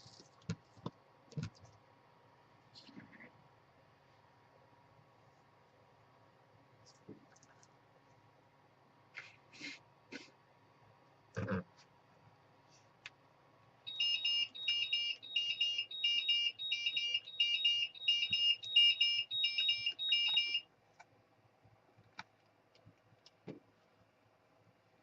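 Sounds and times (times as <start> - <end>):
electronic beeper multi-tone beeps: 13.9 - 20.6.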